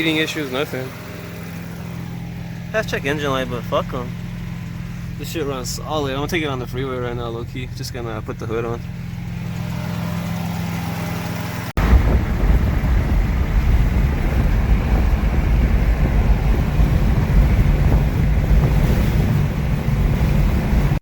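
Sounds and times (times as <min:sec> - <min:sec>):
car driving low rumble: 0:00.0 - 0:21.0
car engine idling: 0:00.0 - 0:21.0
wind noise on microphone: 0:11.8 - 0:21.0.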